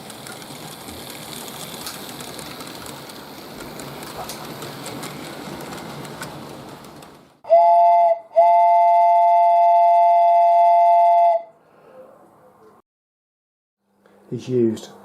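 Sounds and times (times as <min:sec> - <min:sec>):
model locomotive motors running: 0:00.0 - 0:07.4
two-note steam whistle: 0:07.4 - 0:11.6.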